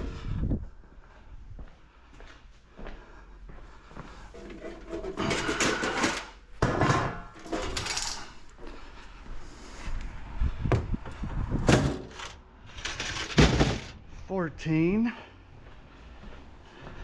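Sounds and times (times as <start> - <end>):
computer towers knocking and thumping: 4.8 - 8.1, 11.6 - 14.0.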